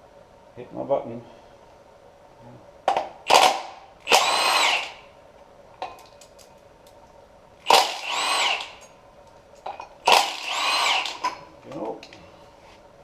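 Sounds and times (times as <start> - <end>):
cordless power tool spinning: 3.3 - 5.1, 7.6 - 8.9, 10.0 - 11.4.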